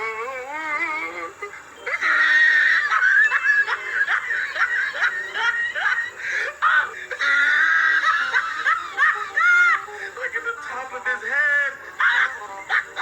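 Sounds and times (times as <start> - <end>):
person laughing hard: 1.4 - 10.0, 12.0 - 13.0.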